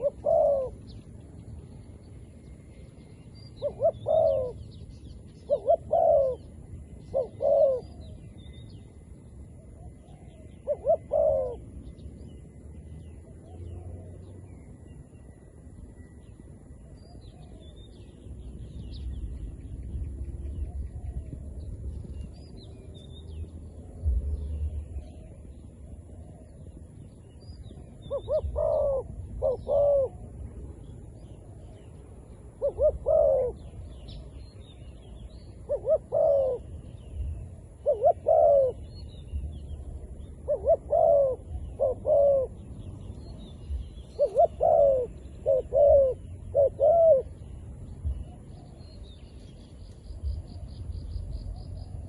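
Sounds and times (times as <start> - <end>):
dove cooing: 0.0 - 1.0, 3.6 - 4.7, 5.4 - 8.3, 9.8 - 11.8, 27.7 - 30.3, 32.5 - 34.3, 35.6 - 42.7, 43.4 - 47.5
low rumble: 11.6 - 35.7, 38.7 - 44.2, 47.2 - 52.0.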